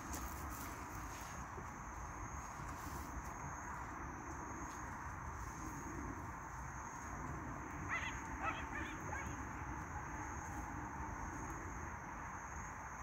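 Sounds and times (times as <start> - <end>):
harsh bird calls: 7.7 - 9.8.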